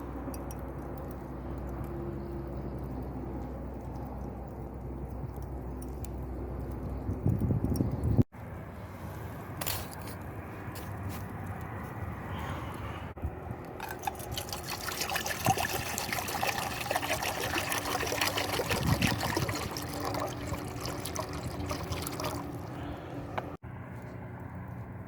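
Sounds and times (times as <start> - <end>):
liquid pouring and trickling: 0.0 - 8.2, 13.8 - 23.1.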